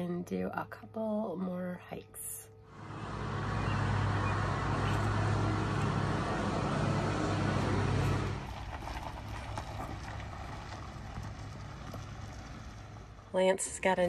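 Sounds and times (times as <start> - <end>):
outdoor background noise: 0.0 - 14.0
car engine running: 2.7 - 14.0.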